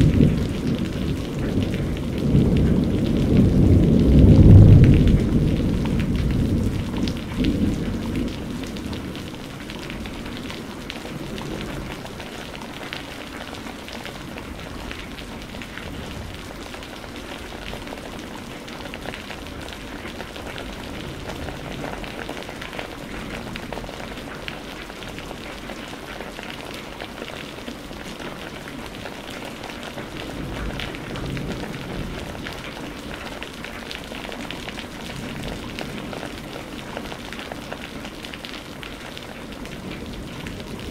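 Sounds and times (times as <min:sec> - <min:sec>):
low thunder rumble: 0:00.0 - 0:12.8, 0:30.0 - 0:33.4
heavy rain: 0:00.0 - 0:40.9.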